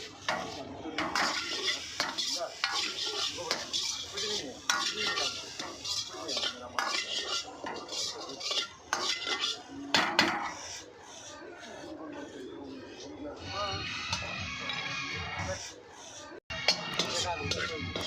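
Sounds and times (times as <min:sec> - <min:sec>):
food sizzling: 0:00.0 - 0:11.0, 0:16.5 - 0:18.0
metal spatula scraping a wok: 0:00.0 - 0:18.0.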